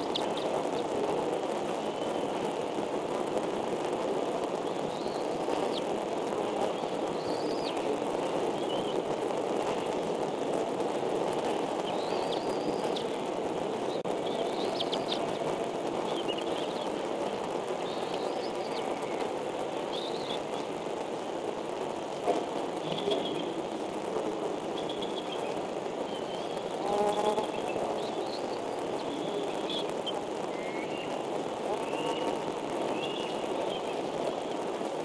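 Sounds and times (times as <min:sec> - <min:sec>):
steady rushing noise: 0:00.0 - 0:35.0
high bird chirps: 0:11.8 - 0:13.2, 0:13.9 - 0:15.4.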